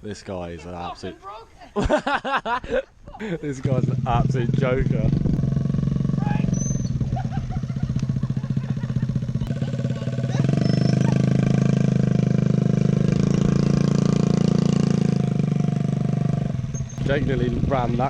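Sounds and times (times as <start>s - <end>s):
motorbike engine running: 3.7s - 18.0s.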